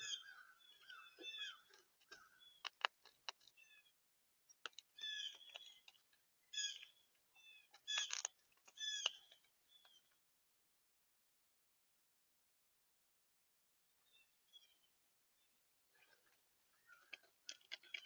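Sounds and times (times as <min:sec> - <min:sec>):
small birds calling harshly: 0:00.0 - 0:04.0, 0:04.6 - 0:10.1.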